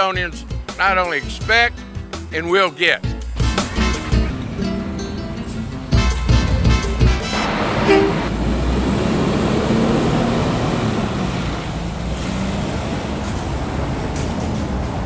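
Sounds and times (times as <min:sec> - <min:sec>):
truck engines rumbling: 0:00.0 - 0:15.0.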